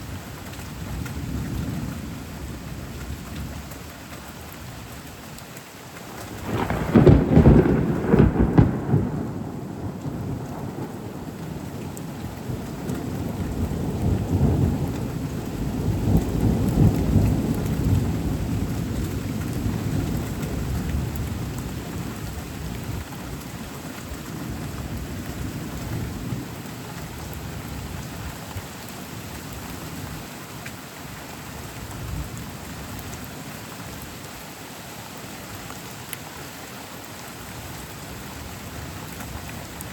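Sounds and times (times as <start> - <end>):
steady rain: 0.0 - 39.9
thunder crack and rumbling: 6.2 - 23.4.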